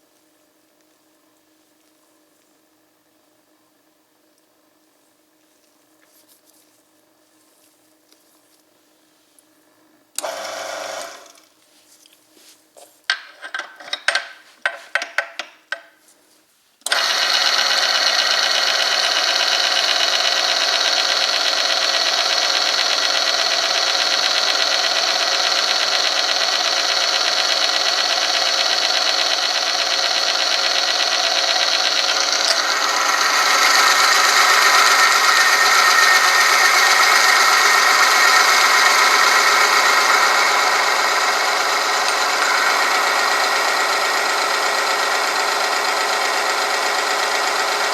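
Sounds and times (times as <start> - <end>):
sharp clicks and knocks: 13.1 - 16.0
machine grinding metal: 16.9 - 47.9.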